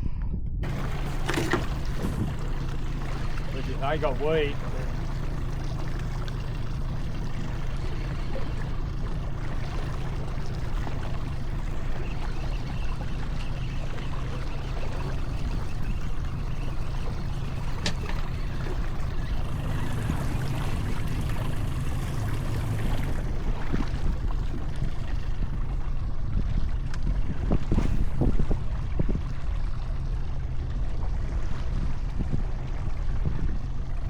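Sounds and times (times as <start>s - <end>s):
low rumble: 0.0s - 34.0s
water splashing around boat: 0.6s - 34.0s.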